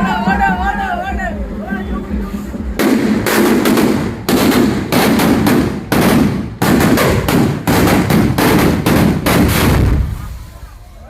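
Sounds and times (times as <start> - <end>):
fireworks bangs: 2.2 - 10.9.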